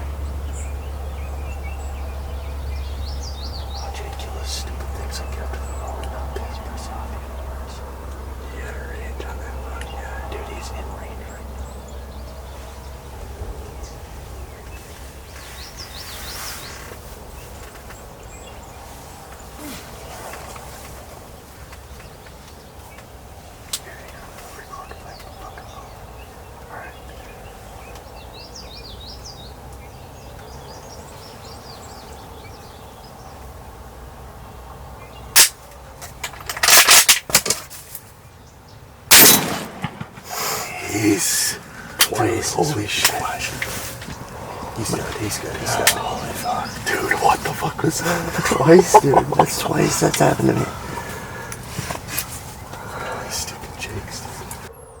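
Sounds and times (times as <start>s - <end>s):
small birds chirping: 0.0s - 36.0s, 37.8s - 55.0s
outdoor background hiss: 0.0s - 54.7s
sharp loud crack: 39.1s - 40.8s
high zigzag bird notes: 39.2s - 54.7s
short rustling bursts: 39.7s - 54.7s.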